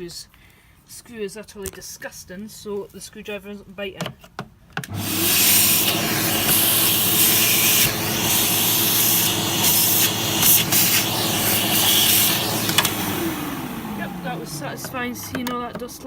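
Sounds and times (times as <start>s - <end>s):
vacuum cleaner running: 4.9s - 16.0s.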